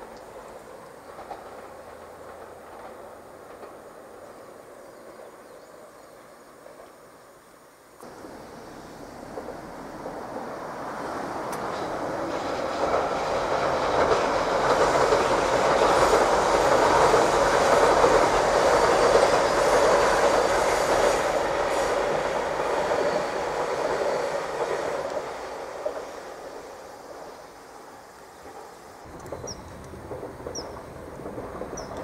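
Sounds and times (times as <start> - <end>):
electric train crossing steel bridge: 0.0 - 32.0.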